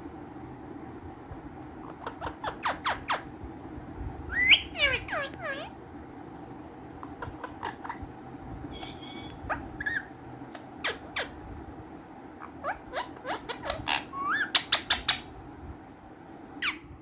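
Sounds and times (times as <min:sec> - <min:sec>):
steady low hum: 0:00.0 - 0:17.0
parakeets screeching: 0:01.8 - 0:03.3, 0:04.3 - 0:05.8, 0:07.0 - 0:08.0, 0:08.7 - 0:11.4, 0:12.4 - 0:15.3.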